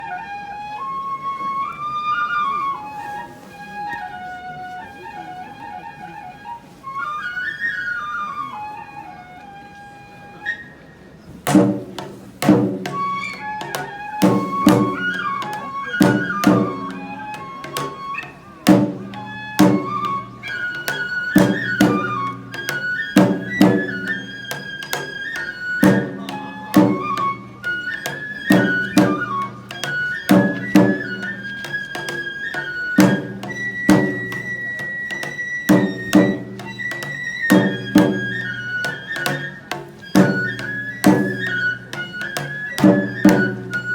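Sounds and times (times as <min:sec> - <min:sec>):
bamboo flute melody: 0:00.0 - 0:43.9
taiko drum strikes: 0:11.5 - 0:43.9.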